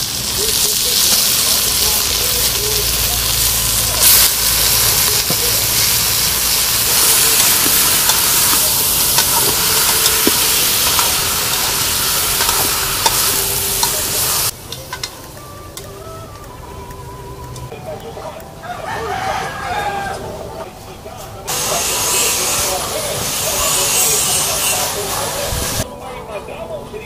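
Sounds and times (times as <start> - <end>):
chicken sizzling in a pot: 0.0 - 15.9, 21.5 - 25.8
wooden ladle scraping pot: 4.0 - 15.1.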